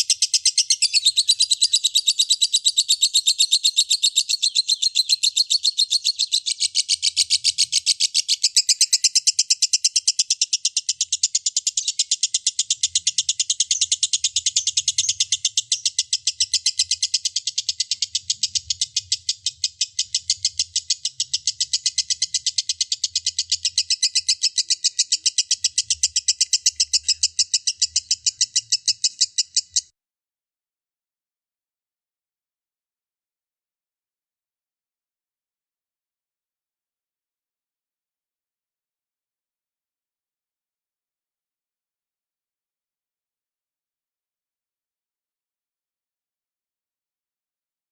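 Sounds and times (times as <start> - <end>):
lovebird shrill chirping chatter: 0.1 - 29.9.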